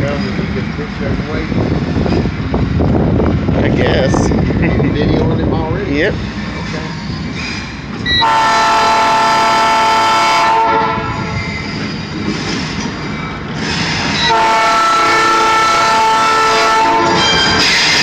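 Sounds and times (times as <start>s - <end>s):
train rumble: 0.0s - 18.0s
locomotive air horn blasts: 8.1s - 11.4s, 14.2s - 17.4s.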